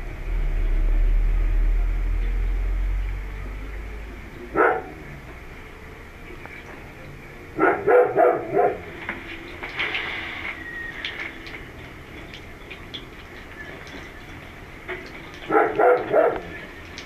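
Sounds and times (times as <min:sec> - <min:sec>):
dog barking: 0:04.5 - 0:05.0, 0:07.6 - 0:08.9, 0:15.5 - 0:16.6.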